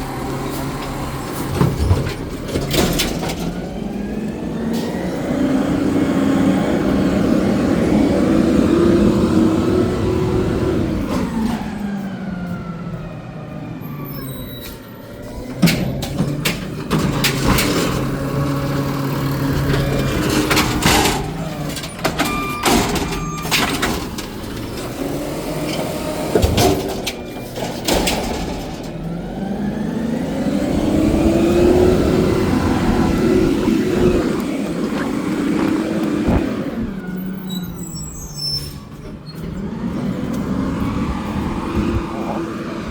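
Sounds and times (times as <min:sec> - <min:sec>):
diesel truck engine revving: 0:00.0 - 0:42.9
sharp clanks and bangs: 0:19.5 - 0:29.1.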